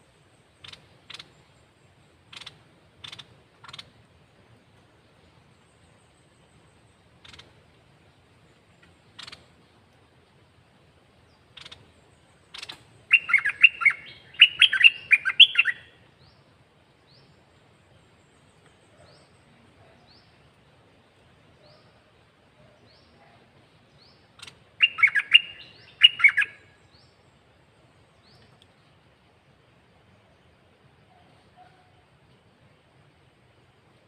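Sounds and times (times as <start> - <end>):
bird singing: 0.0 - 4.0, 4.8 - 9.6, 11.2 - 29.0
short high bird chirps: 12.5 - 15.9, 24.4 - 26.6.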